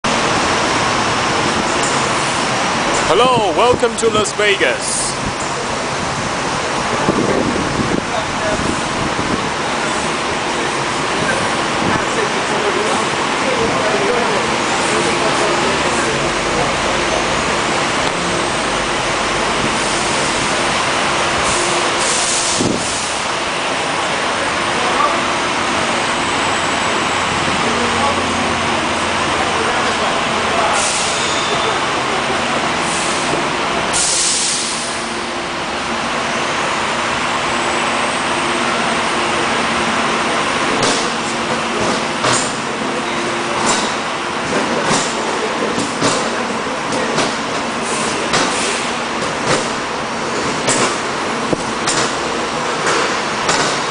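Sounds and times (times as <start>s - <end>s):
tram rumble and motor hum: 0.0s - 53.9s
air hissing: 32.9s - 35.0s
air hiss: 34.0s - 35.0s.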